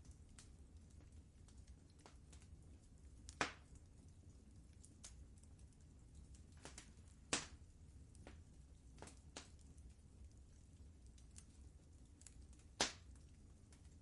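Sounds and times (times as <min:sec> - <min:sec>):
faint low rumble: 0:00.0 - 0:14.0
wood fire crackling: 0:00.0 - 0:14.0.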